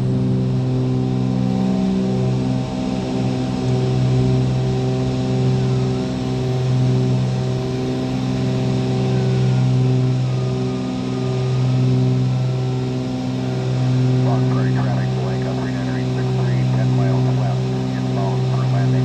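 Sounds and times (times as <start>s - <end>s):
aircraft piston engines and propellers: 0.0s - 19.0s.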